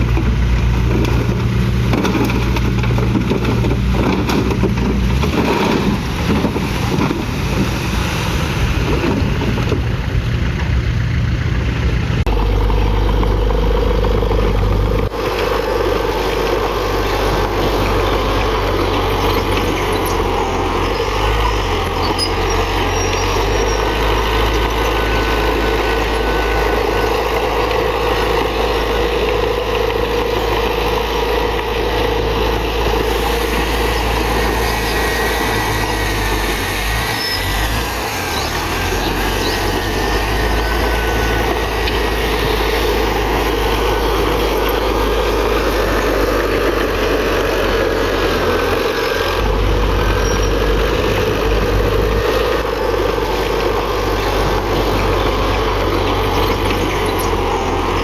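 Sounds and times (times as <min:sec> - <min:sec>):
heavy diesel machine running: 0:00.0 - 0:58.0
faint high squeaking: 0:18.0 - 0:27.2.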